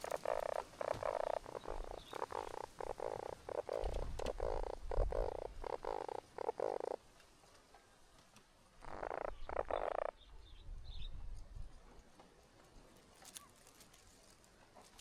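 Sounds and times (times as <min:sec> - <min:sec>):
raspy croaking animal calls: 0:00.0 - 0:07.1, 0:08.8 - 0:10.2.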